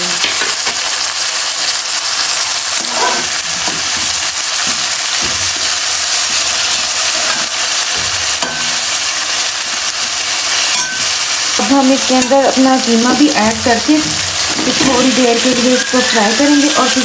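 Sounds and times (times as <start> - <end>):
vegetables sizzling in hot oil: 0.0 - 17.0
metal spoon scraping a pan: 2.6 - 12.7.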